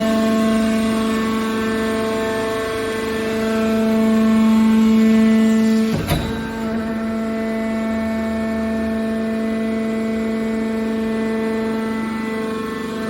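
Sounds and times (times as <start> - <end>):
hydraulic pump hum: 0.1 - 13.0.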